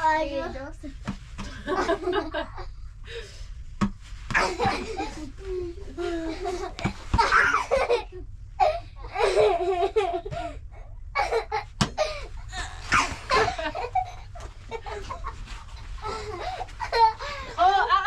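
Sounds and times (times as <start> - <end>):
child's voice: 0.0 - 1.0
people laughing: 1.4 - 2.7, 4.4 - 8.2, 11.2 - 18.0.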